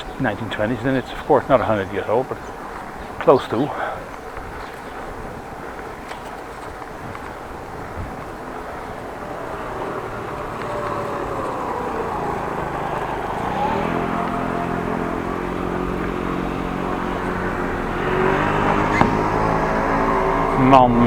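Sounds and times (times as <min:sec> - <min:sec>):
car engine passing close by: 0:06.4 - 0:21.0.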